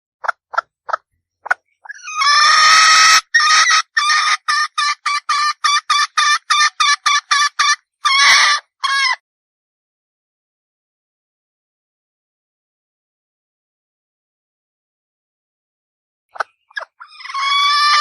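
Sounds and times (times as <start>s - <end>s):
junglefowl hen clucking: 0.2s - 9.1s, 16.4s - 18.0s.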